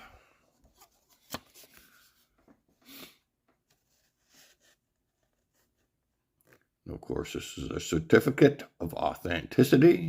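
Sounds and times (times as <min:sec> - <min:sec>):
paper rustling: 0:00.6 - 0:02.5.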